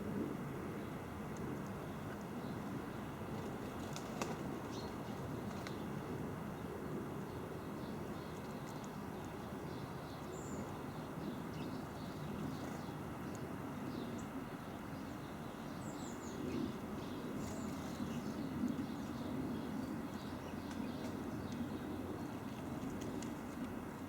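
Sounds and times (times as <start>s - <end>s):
songbirds chirping: 1.6s - 24.0s.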